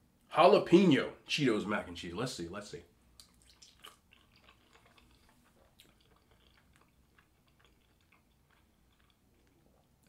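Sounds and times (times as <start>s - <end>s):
faint chewing: 3.1s - 10.0s.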